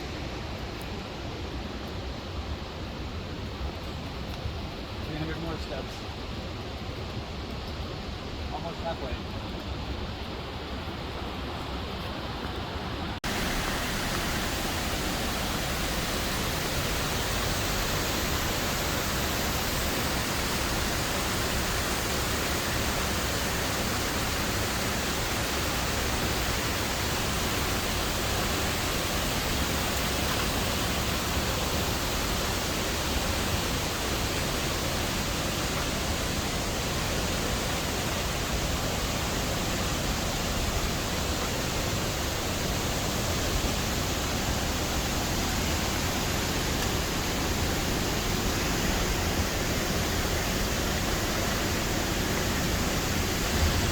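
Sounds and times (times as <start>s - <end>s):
waterfall rushing: 12.6s - 53.9s.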